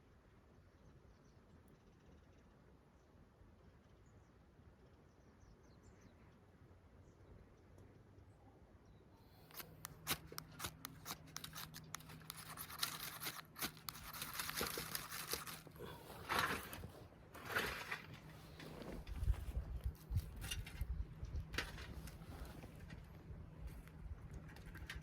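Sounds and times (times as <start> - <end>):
sharp clicks and snaps: 9.4 - 15.8
tent fabric rustling: 9.6 - 20.4, 21.6 - 23.1.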